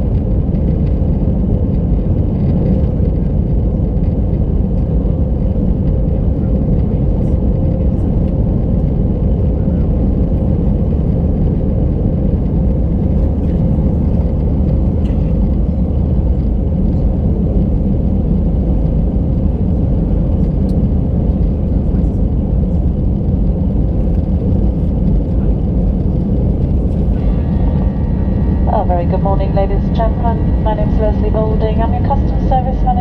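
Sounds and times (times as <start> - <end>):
airplane cabin rumble: 0.0 - 33.0
faint steady hum: 26.8 - 33.0.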